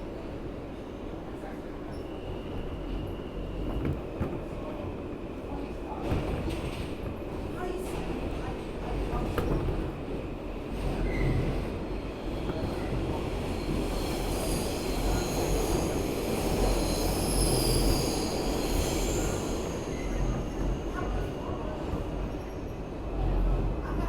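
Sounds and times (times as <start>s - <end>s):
train wheels rumbling on rail: 1.4s - 24.0s
steel wheels squealing: 13.6s - 20.6s.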